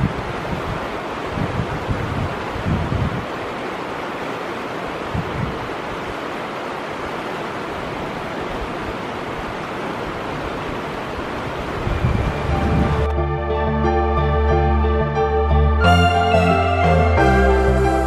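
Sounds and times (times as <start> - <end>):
wind buffeting microphone: 0.0 - 3.4, 4.9 - 6.2, 7.8 - 13.2
fast-flowing stream rushing: 0.0 - 13.1.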